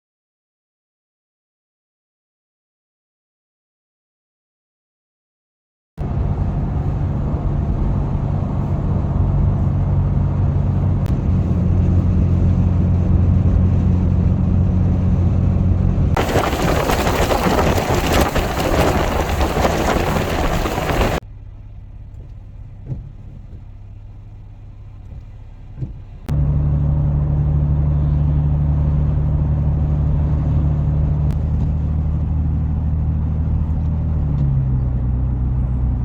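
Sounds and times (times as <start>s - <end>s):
car engine running: 6.0s - 36.0s
loud rushing noise: 16.1s - 21.2s.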